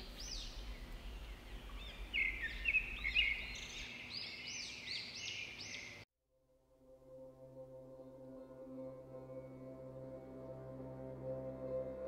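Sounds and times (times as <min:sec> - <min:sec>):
faint low outdoor hum: 0:00.0 - 0:06.0
songbirds chirping: 0:00.0 - 0:06.0.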